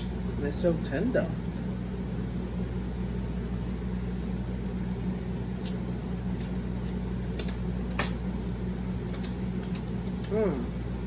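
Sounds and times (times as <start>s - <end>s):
low mechanical hum: 0.0s - 11.0s
wet clicks of chewing meat: 6.4s - 10.3s.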